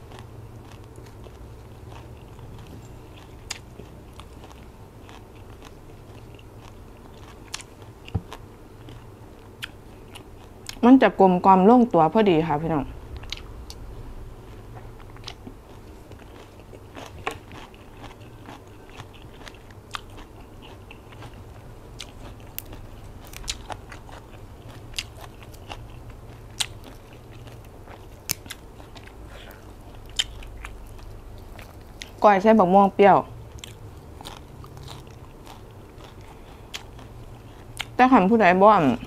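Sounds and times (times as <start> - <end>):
person chewing crunchy food: 0.0 - 10.8, 13.1 - 32.2, 33.4 - 38.0
low steady hum: 0.0 - 39.0.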